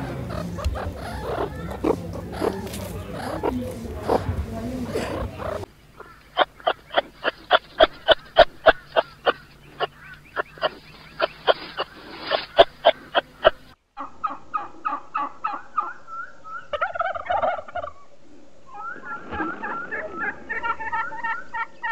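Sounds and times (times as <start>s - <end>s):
higher bird chatter: 0.0s - 13.8s
fowl calling: 0.0s - 18.1s.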